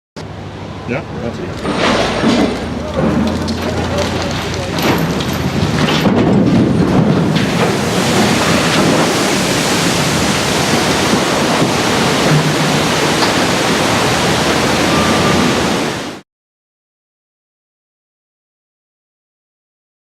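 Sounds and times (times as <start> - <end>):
rush of surging water: 0.4 - 16.2.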